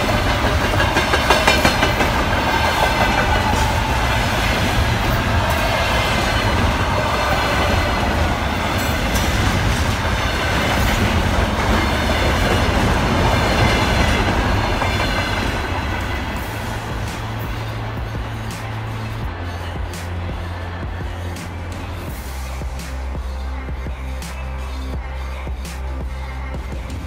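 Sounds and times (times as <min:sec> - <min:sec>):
clacks at rail joints: 0:00.0 - 0:03.8
freight train wheels on rails: 0:00.0 - 0:27.0.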